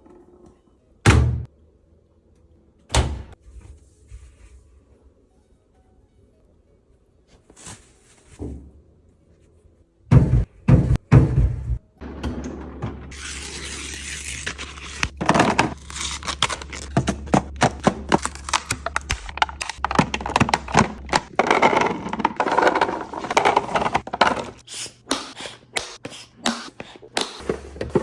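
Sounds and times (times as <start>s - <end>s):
packaging crinkling and clatter: 15.2s - 24.1s.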